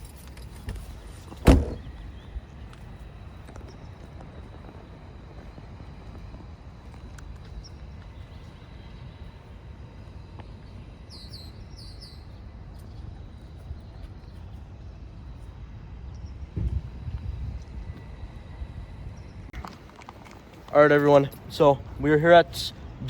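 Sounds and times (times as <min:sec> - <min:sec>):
steady low rumble: 0:00.0 - 0:23.0
bird chirping: 0:10.5 - 0:14.5.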